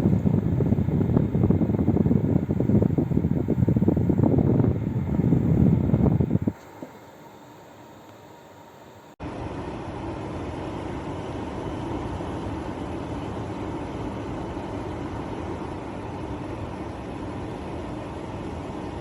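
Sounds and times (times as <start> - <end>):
dehumidifier whirring hum: 0.0 - 19.0.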